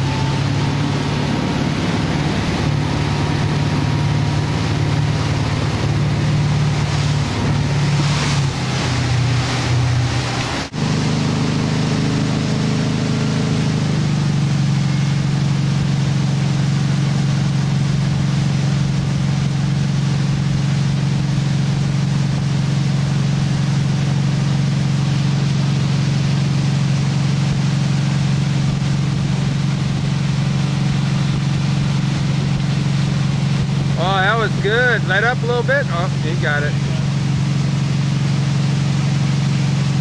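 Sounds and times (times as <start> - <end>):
motorboat engine drone: 0.0 - 40.0
rushing water: 0.0 - 40.0.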